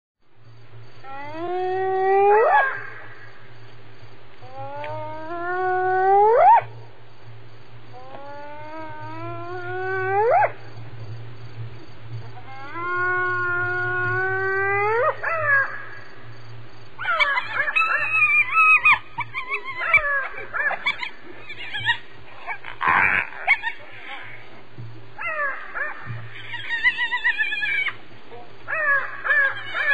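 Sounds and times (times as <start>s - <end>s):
low steady hum: 0.2s - 29.9s
hyena whooping calls: 1.1s - 3.3s, 12.3s - 16.0s, 17.0s - 24.6s, 25.2s - 28.0s, 28.6s - 29.9s.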